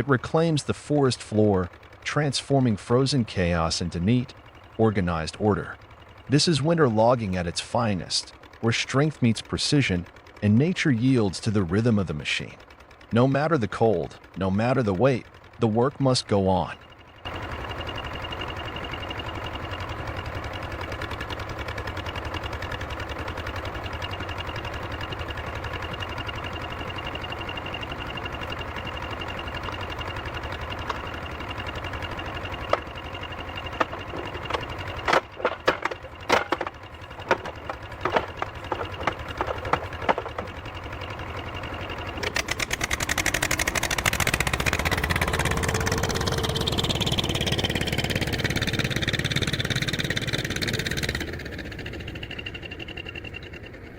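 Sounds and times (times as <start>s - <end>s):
heavy machine engine running: 0.0s - 53.9s
loud knocks and clunks: 32.6s - 40.8s.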